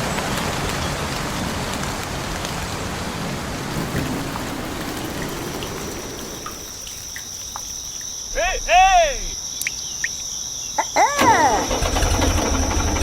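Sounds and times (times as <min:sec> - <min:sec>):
rain falling: 0:00.0 - 0:09.4.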